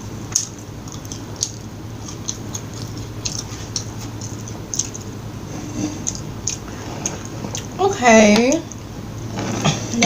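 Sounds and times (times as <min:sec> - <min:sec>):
chewing food: 0:00.0 - 0:07.8.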